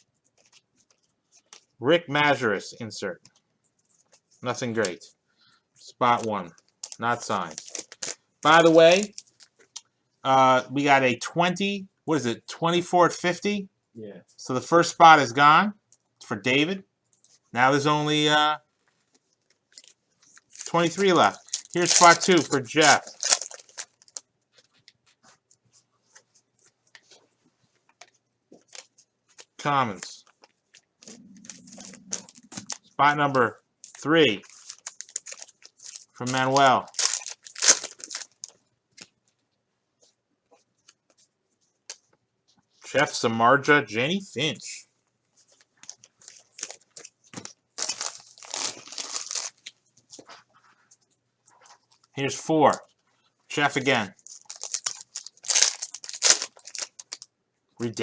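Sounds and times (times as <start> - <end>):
cards rustling and ticking: 0.0 - 1.8, 5.8 - 9.9, 18.8 - 39.4, 45.3 - 57.3
wrapper tearing and crinkling: 6.8 - 9.8, 19.5 - 24.3, 31.0 - 32.8, 33.8 - 38.6, 45.8 - 49.8, 54.1 - 57.3.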